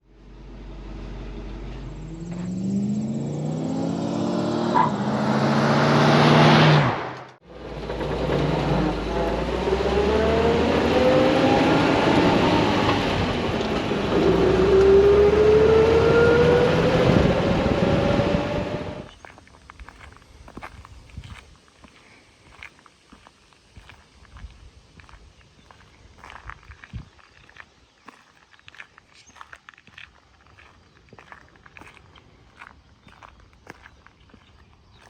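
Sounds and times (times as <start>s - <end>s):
car engine accelerating: 0.0s - 19.1s.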